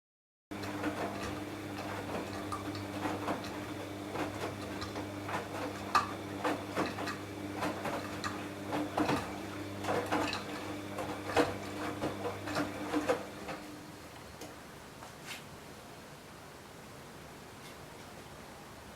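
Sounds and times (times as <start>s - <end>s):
washing machine motor hum: 0.5s - 14.6s.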